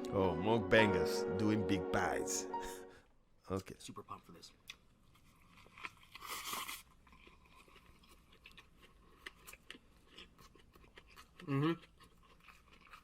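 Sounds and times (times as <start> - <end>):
chewing crunches and wet clicks: 4.6 - 13.0.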